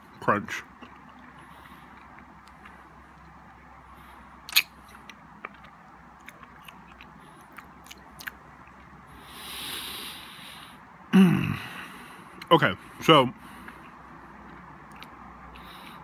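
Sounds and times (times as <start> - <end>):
chewing: 0.6 - 9.0, 13.6 - 15.7
mouth clicks: 4.5 - 8.8
breathy hiss: 9.1 - 12.3.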